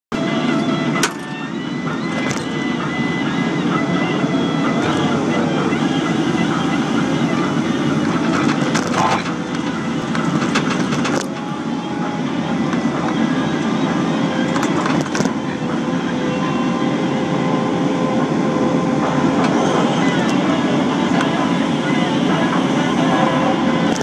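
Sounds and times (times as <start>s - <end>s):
excavator engine droning: 0.1s - 24.0s
rattling clatter: 0.9s - 3.0s, 4.6s - 15.6s.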